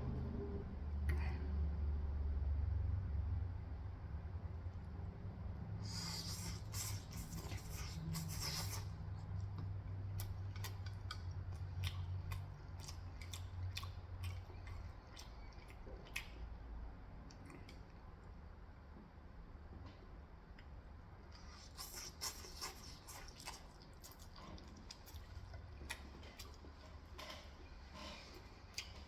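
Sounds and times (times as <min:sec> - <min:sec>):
low steady hum: 0:00.0 - 0:29.0
crunching bites of fried chicken: 0:05.8 - 0:16.6
chewing clicks and mouth sounds: 0:05.8 - 0:18.4, 0:20.5 - 0:29.0.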